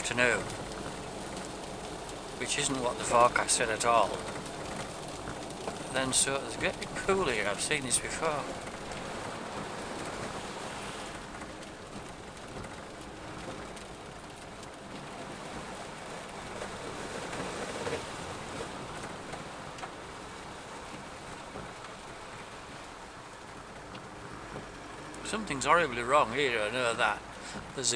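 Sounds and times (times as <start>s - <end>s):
vehicle running noise: 0.0s - 18.8s
rain on a vehicle: 0.0s - 27.9s.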